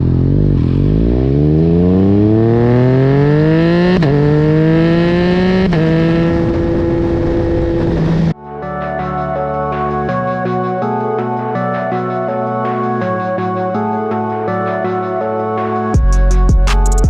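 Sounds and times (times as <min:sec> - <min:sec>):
motorcycle engine accelerating hard: 0:00.0 - 0:08.4.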